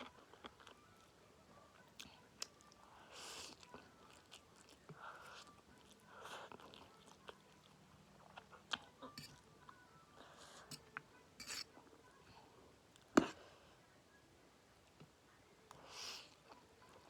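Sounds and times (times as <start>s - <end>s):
person chewing noodles: 3.2s - 9.4s.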